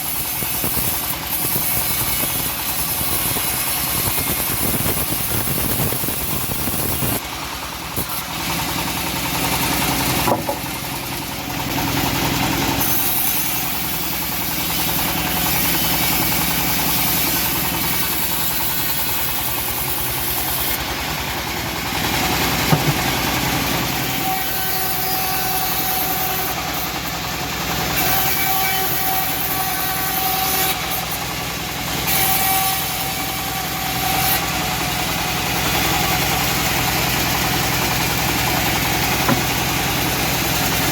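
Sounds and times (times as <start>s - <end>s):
bandsaw mill running: 0.0s - 40.9s
sharp knocks: 10.2s - 10.8s, 22.7s - 23.2s, 39.3s - 39.7s.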